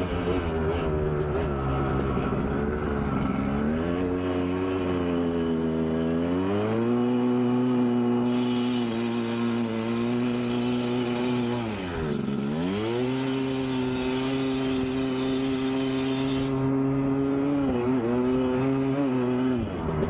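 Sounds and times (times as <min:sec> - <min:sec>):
two-stroke engine at high revs: 0:00.0 - 0:20.0
hiss: 0:08.3 - 0:11.2, 0:13.5 - 0:16.6.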